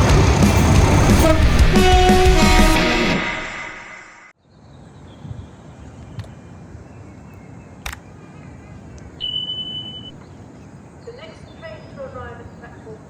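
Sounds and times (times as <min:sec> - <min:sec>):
rock music: 0:00.0 - 0:04.2
sharp clicks: 0:07.8 - 0:08.0.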